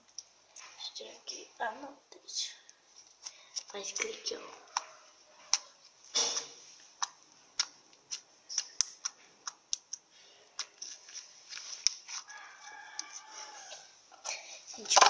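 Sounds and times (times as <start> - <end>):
rooster crowing: 12.2 - 14.0.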